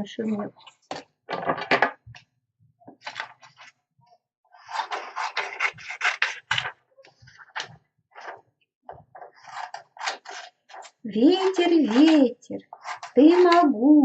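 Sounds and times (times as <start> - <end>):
scratching and rubbing of craft material: 2.8 - 13.9
scraping strokes: 4.5 - 8.4, 9.2 - 13.7.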